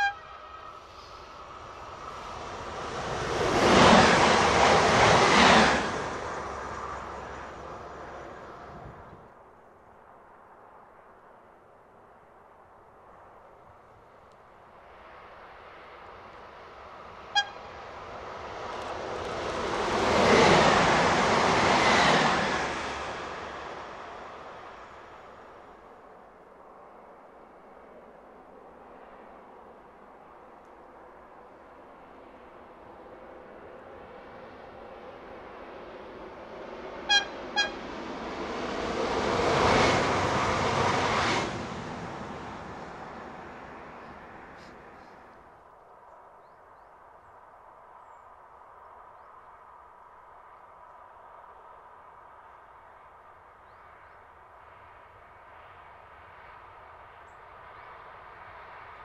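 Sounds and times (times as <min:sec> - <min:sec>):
sharp high train toot: 0:00.0 - 0:01.1, 0:17.3 - 0:17.7, 0:37.1 - 0:37.9
train passing at speed: 0:00.0 - 0:09.4, 0:13.0 - 0:45.7, 0:50.8 - 0:59.0.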